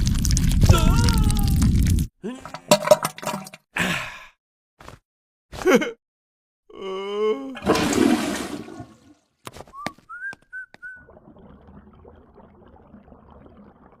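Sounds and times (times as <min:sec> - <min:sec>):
whistle-like chirps: 0:09.7 - 0:11.1.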